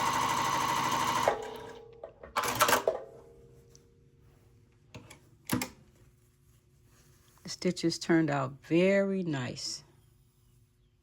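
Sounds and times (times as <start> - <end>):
sewing machine stitching: 0.0 - 1.8.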